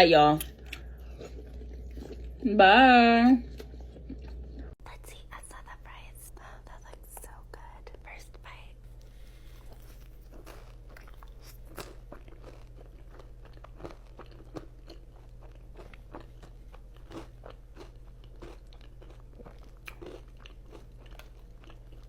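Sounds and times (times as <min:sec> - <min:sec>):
low electrical hum: 0:00.0 - 0:22.0
chewing crisp fries: 0:00.4 - 0:02.6, 0:03.4 - 0:04.9, 0:09.0 - 0:22.0.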